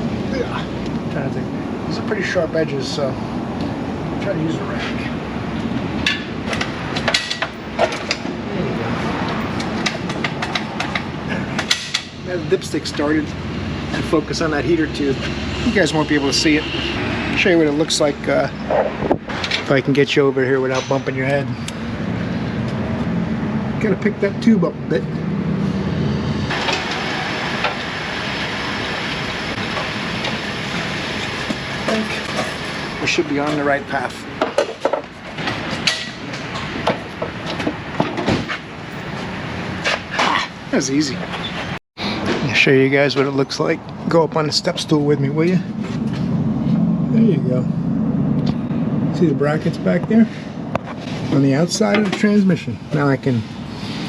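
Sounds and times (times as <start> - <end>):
low shop hum: 0.0 - 54.0
rushing machine noise: 25.6 - 34.1.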